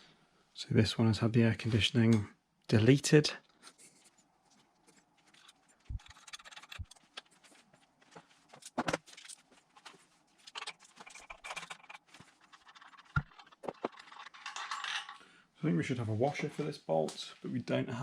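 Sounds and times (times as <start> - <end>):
metal clinks and scrapes of tools: 3.6 - 7.4, 8.6 - 15.3.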